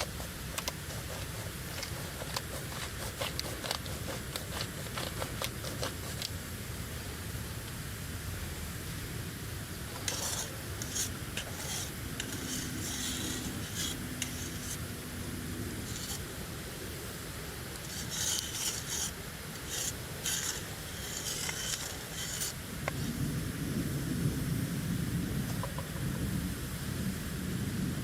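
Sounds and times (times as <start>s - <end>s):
irregular scraping strokes: 0.0s - 6.3s, 9.8s - 15.1s, 15.8s - 16.3s, 17.6s - 23.2s.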